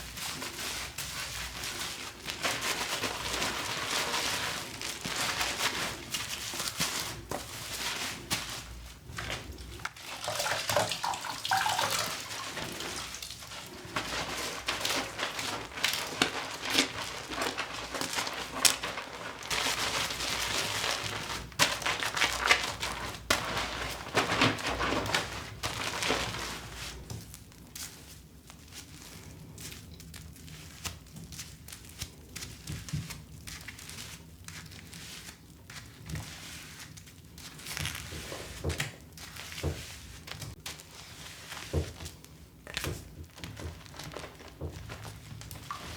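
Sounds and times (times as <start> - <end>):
tap water running and splashing: 0.0 - 25.4.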